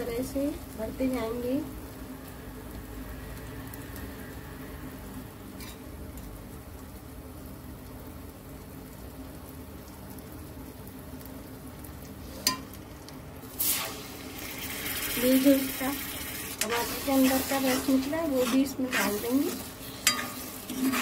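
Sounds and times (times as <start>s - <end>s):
faint steady hum: 0.0s - 21.0s
low steady sizzle: 0.0s - 21.0s.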